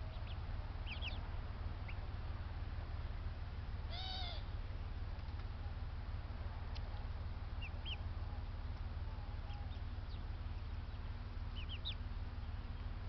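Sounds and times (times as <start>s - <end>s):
birds chirping: 0.0s - 2.4s, 6.7s - 13.0s
steady low rumble: 0.0s - 13.0s.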